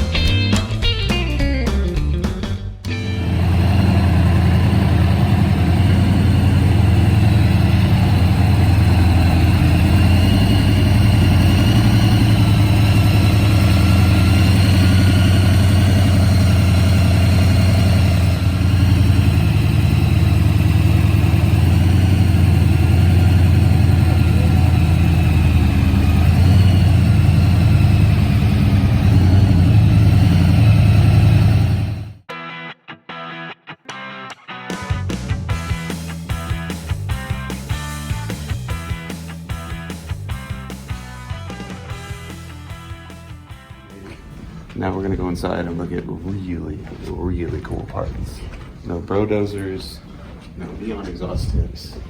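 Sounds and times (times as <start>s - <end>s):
engine humming steadily: 2.9s - 32.3s.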